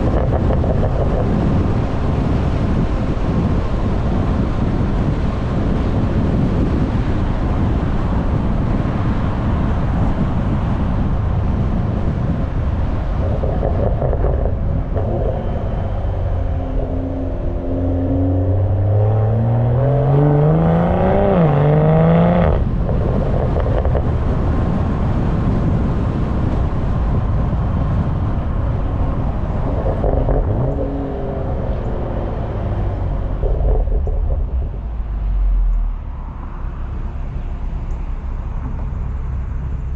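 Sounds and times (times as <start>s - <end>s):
wind buffeting on microphone: 0.0s - 36.4s
car exhaust accelerating: 0.0s - 39.9s.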